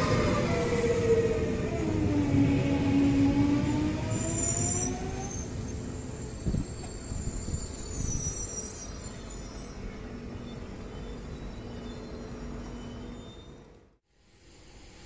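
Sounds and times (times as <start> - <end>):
train brake squeals: 4.1 - 13.9.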